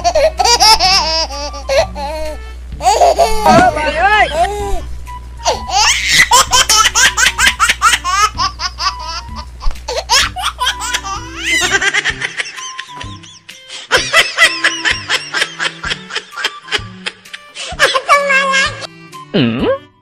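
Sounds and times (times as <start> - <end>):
background music: 0.0 - 20.0
high-pitched laughter: 10.0 - 18.9.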